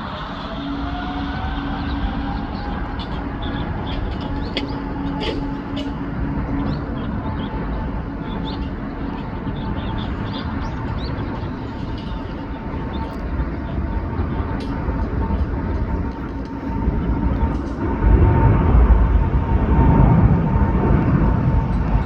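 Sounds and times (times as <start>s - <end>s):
jet engines rumbling with whine: 0.0s - 22.0s
small birds chirping: 1.7s - 14.7s.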